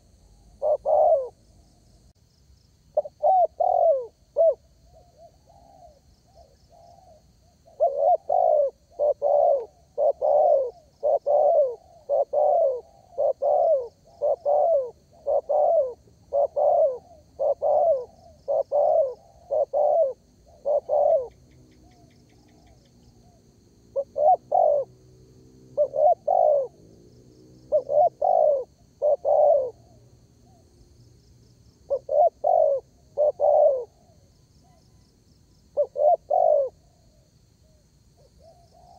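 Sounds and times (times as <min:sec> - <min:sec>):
dove cooing: 0:00.0 - 0:01.4, 0:03.0 - 0:26.9, 0:27.6 - 0:30.7, 0:31.9 - 0:35.0, 0:35.7 - 0:38.9.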